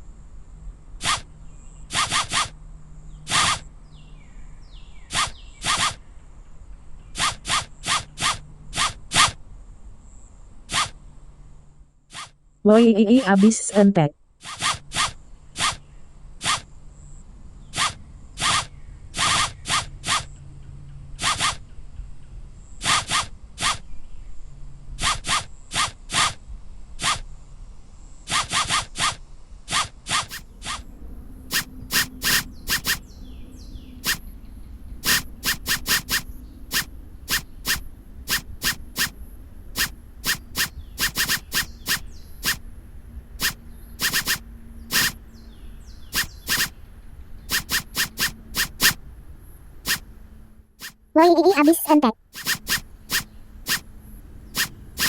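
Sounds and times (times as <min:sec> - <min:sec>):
sharp scratchy rasps: 0:29.7 - 0:33.2, 0:34.0 - 0:34.2, 0:35.0 - 0:42.6, 0:43.4 - 0:45.2, 0:46.1 - 0:46.7, 0:47.4 - 0:49.0, 0:49.8 - 0:50.0, 0:50.8 - 0:53.9, 0:54.5 - 0:55.0.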